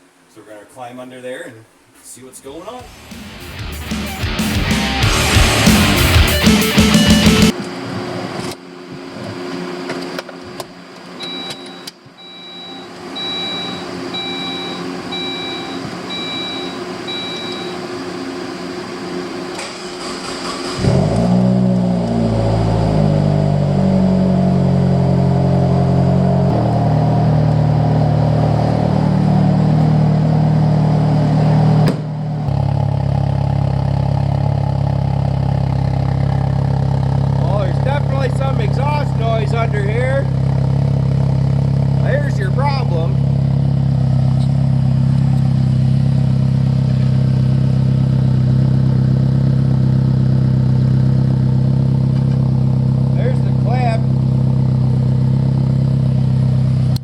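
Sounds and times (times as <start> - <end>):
car engine starting and idling: 2.8 - 57.0
short electronic beeps: 11.2 - 17.8.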